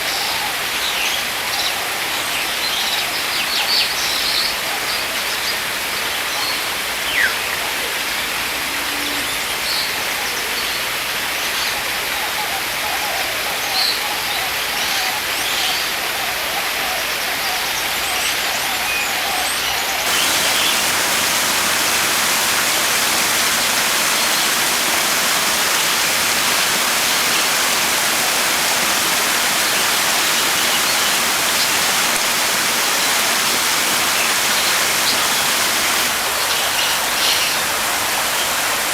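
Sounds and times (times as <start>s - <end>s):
steady rushing noise: 20.1s - 36.2s.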